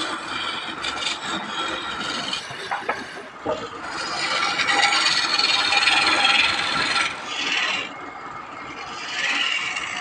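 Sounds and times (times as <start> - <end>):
hand tool rasping wood: 0.0 - 7.9.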